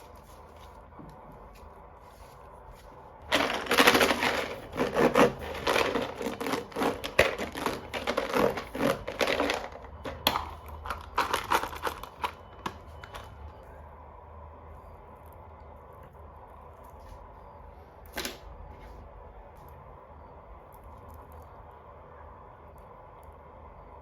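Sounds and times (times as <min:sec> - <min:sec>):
plastic packaging crinkling: 0:02.1 - 0:13.3.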